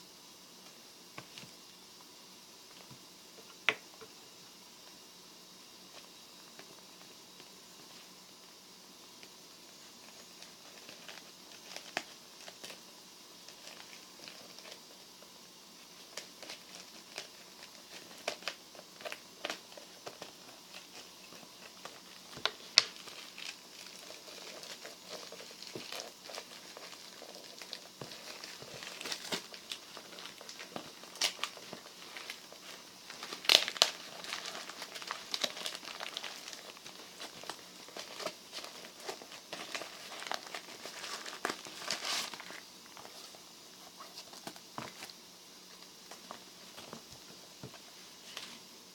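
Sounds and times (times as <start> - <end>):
small objects clicking and crinkling: 15.9 - 43.2.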